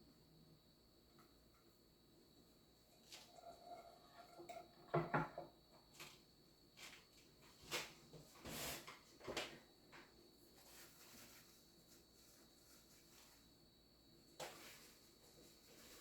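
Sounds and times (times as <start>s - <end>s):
objects knocking: 4.2s - 5.6s.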